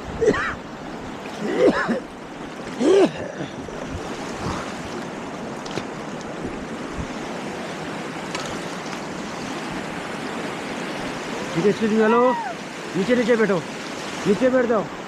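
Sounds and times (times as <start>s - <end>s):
river rushing through rapids: 0.0s - 15.0s.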